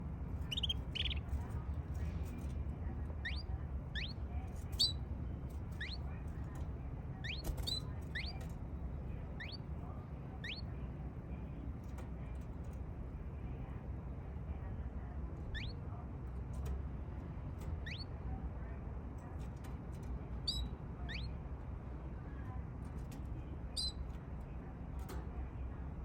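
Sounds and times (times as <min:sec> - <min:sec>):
low steady rumble: 0:00.0 - 0:26.0
canary chirping: 0:00.4 - 0:02.5, 0:03.1 - 0:06.5, 0:07.2 - 0:10.8, 0:15.5 - 0:15.8, 0:17.8 - 0:18.1, 0:20.4 - 0:21.3, 0:23.7 - 0:24.1.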